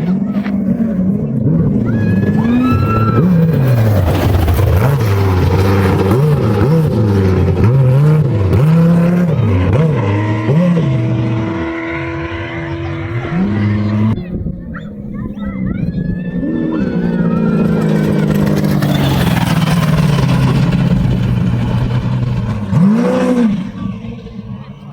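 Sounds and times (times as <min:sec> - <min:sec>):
racing engine revving: 0:00.0 - 0:14.3, 0:15.9 - 0:24.9
steady engine tone: 0:00.0 - 0:24.9.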